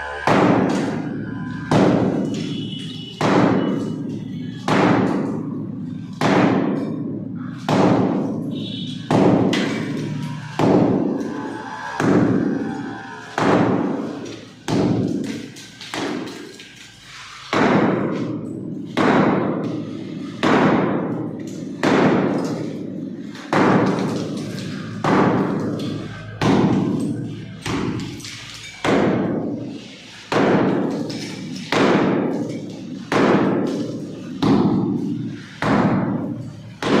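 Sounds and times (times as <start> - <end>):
hammer blows on a wall: 0.1 - 5.5.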